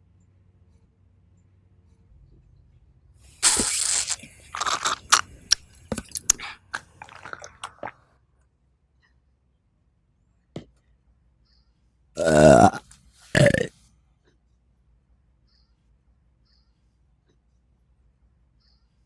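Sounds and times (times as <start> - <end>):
crunchy chewing: 3.3 - 8.0, 12.2 - 13.7.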